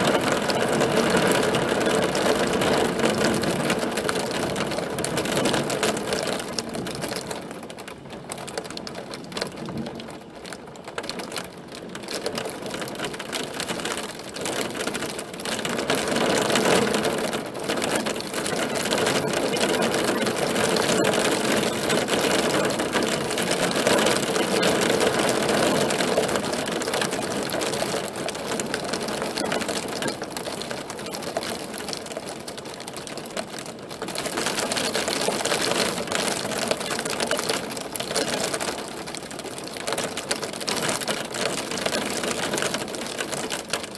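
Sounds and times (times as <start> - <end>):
hail clattering on hard surface: 0.0 - 43.9.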